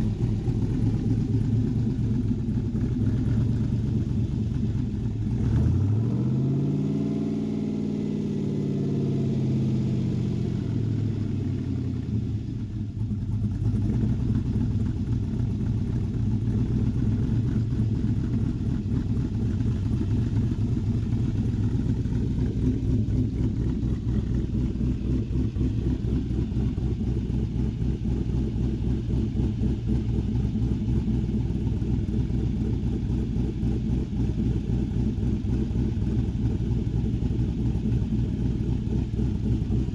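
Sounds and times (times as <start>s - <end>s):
engine revving and running roughly: 0.0s - 12.4s.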